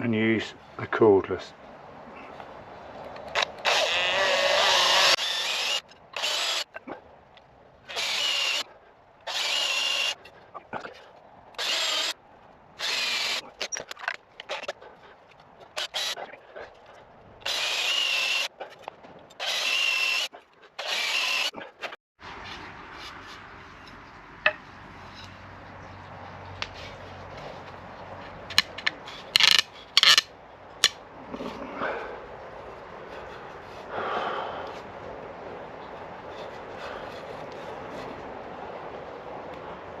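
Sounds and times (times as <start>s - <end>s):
cordless drill whining: 3.3s - 6.7s, 7.9s - 8.6s.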